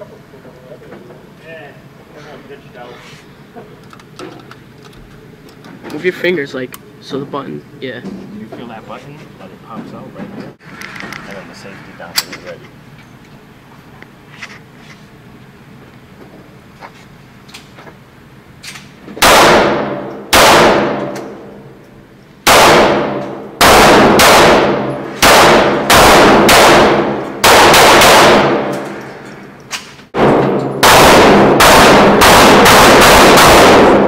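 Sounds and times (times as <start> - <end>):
pistol shots echoing: 19.2 - 21.6, 22.4 - 29.0, 30.2 - 34.0.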